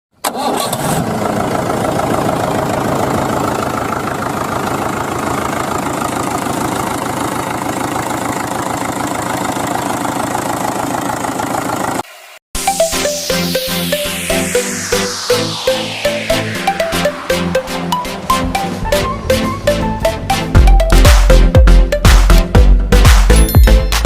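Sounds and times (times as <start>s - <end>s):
engine idling: 0.3s - 12.0s.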